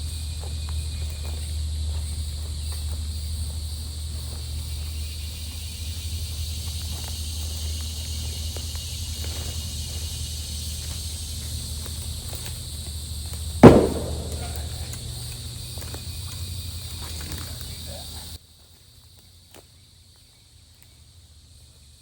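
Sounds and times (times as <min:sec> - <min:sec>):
high insect drone: 0:00.0 - 0:13.3.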